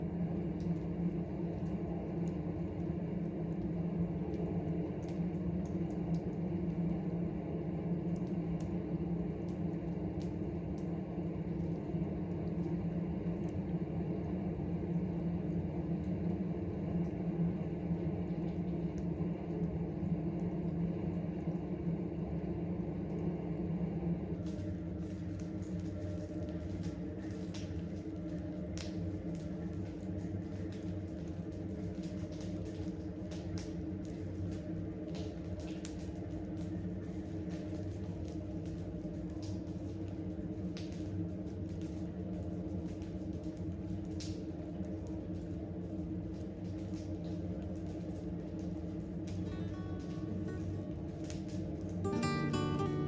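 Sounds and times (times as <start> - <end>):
campfire crackling: 0.0 - 22.2, 22.8 - 53.0
steady low hum: 46.3 - 53.0.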